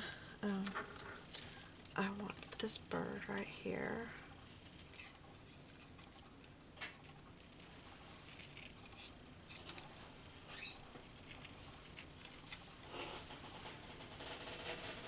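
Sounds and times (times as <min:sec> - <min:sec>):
scissors snipping paper: 0:04.8 - 0:09.9, 0:10.6 - 0:12.6.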